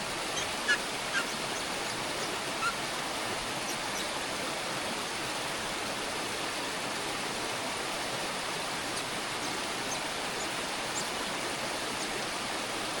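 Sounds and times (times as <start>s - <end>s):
steady rushing hiss: 0.0s - 13.0s
faint bird chirps: 0.3s - 2.8s.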